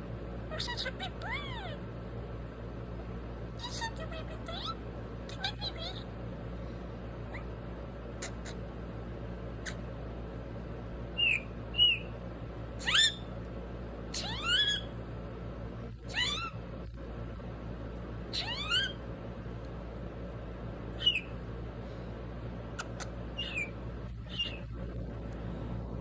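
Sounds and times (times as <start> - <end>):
parrot meow-like calls: 11.2 - 12.1, 12.8 - 13.3, 14.1 - 14.9, 16.1 - 16.6, 18.3 - 19.0, 21.0 - 21.3, 22.8 - 23.7, 24.3 - 24.7.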